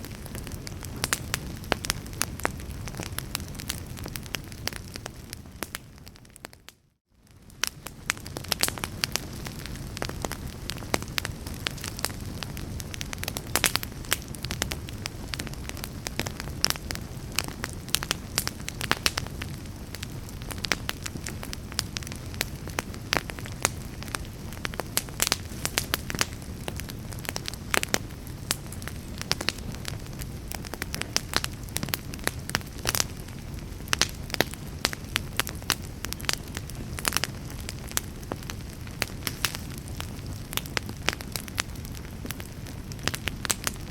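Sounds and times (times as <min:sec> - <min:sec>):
fire crackling and popping: 0:00.0 - 0:43.9.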